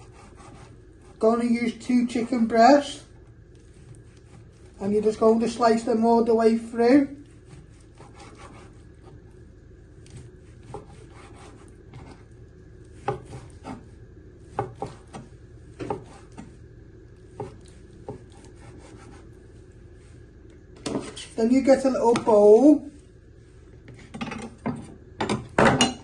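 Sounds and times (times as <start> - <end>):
knife cutting raw meat: 7.2 - 9.2, 17.4 - 19.3.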